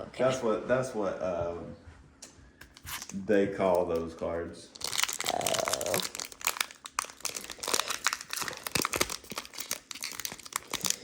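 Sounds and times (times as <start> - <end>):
foil wrappers crinkling and tearing: 2.7 - 4.1, 4.7 - 11.0.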